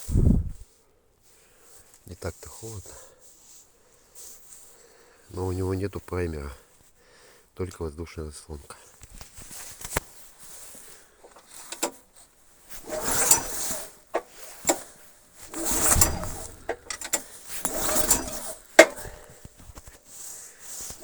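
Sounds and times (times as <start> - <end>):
engine pull-starter cranking: 11.6 - 12.0, 12.7 - 19.6
pull-starter clicks: 12.7 - 20.0.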